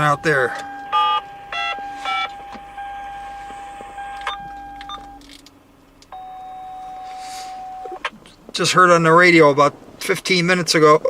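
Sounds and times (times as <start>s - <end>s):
car electronic chimes beeping: 0.0s - 8.5s
electric whine and low hum: 0.0s - 11.0s.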